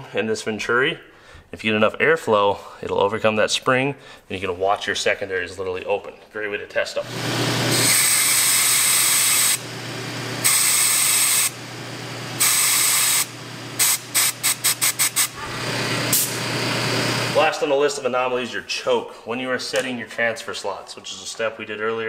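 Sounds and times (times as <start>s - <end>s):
compressed air blow gun hissing: 12.4s - 16.5s.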